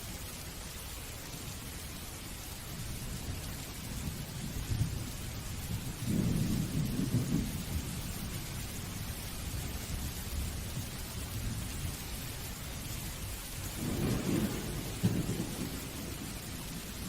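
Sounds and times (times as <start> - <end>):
steady rain hiss: 0.0 - 17.0
low rumble of thunder: 2.7 - 17.0.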